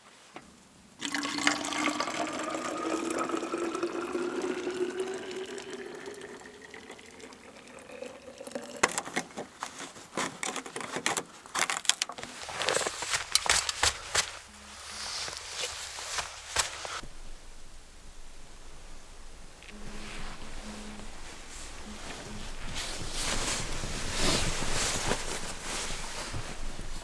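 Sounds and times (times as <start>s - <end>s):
water poured into container: 1.0s - 9.6s.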